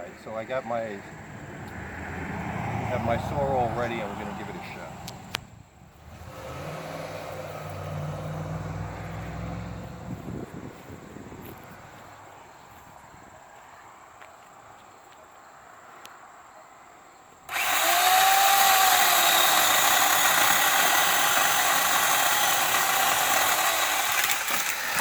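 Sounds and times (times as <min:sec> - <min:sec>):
electric chainsaw cutting wood: 0:06.1 - 0:08.6, 0:17.5 - 0:25.0.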